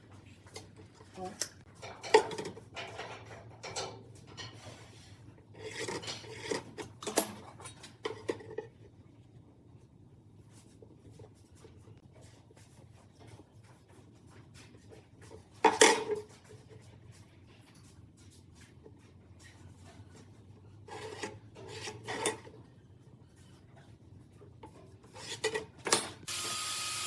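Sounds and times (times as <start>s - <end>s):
hand tool scraping wood: 19.6s - 22.5s, 25.0s - 25.8s.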